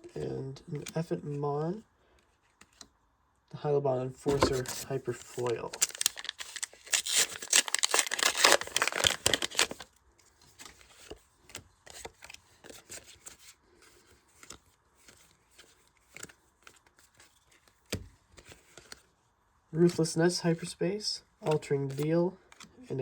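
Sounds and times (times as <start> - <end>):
cards clicking and rustling: 2.2 - 2.9, 4.3 - 19.1, 21.4 - 22.8
foil pack tearing and crinkling: 4.4 - 9.9.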